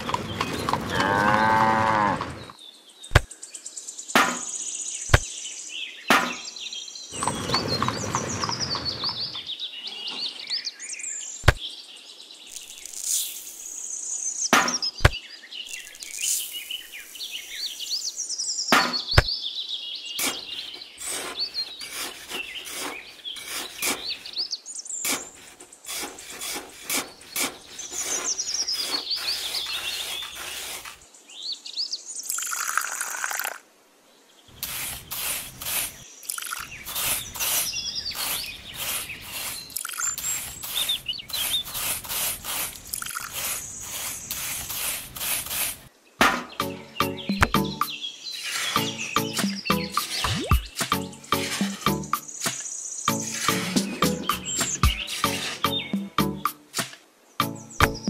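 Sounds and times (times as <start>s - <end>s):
birdsong chirps: 0.0s - 58.0s
cow mooing: 0.8s - 2.4s.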